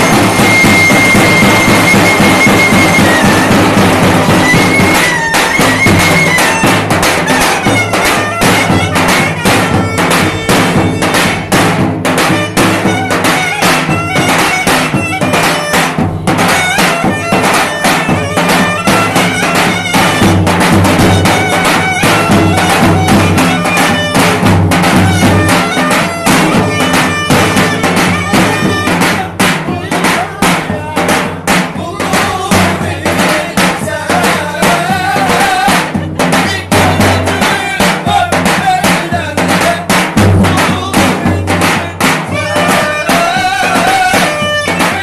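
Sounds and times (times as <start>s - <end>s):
reedy wind melody: 0.0s - 29.8s
fast drum beat: 0.0s - 45.0s.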